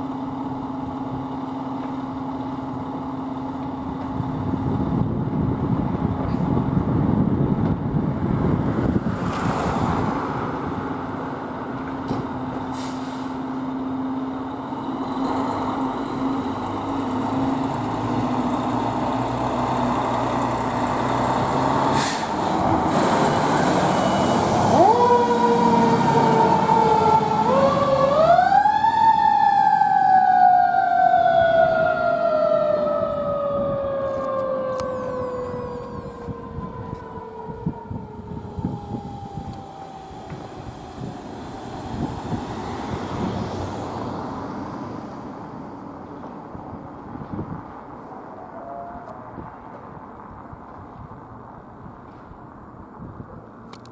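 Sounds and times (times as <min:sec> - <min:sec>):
fire engine running: 0:00.0 - 0:48.5
mechanical siren wailing: 0:24.0 - 0:42.8, 0:48.4 - 0:49.5.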